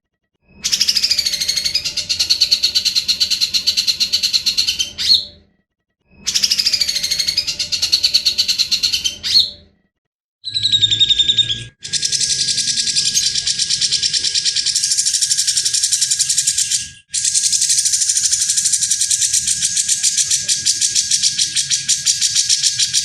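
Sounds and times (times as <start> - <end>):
songbird rasping rattle call: 10.7 - 23.0.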